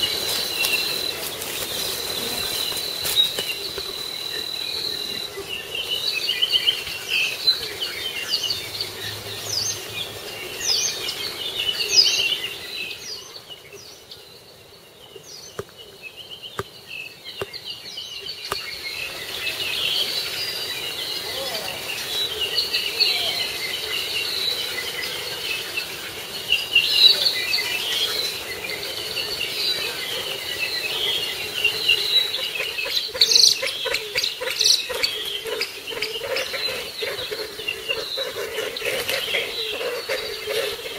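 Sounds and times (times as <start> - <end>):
high insect drone: 0.0 - 7.8.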